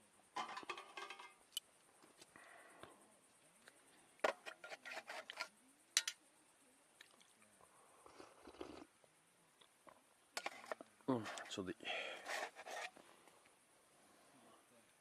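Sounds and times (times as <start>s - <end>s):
cookware clinking: 0.4s - 1.4s, 4.6s - 6.2s
cookware scraping: 0.4s - 1.4s, 4.2s - 6.2s, 10.4s - 11.6s, 12.2s - 13.0s.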